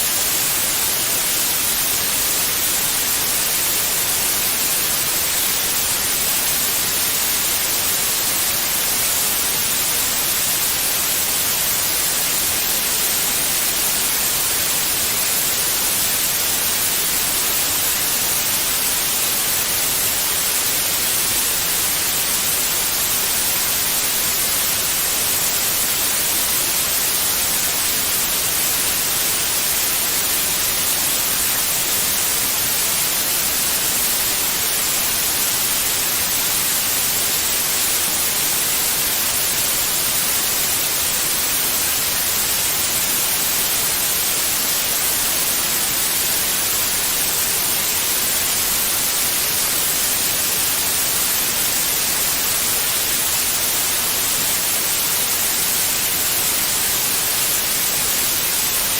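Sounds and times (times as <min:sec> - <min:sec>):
electronic white noise hiss: 0:00.0 - 0:58.9.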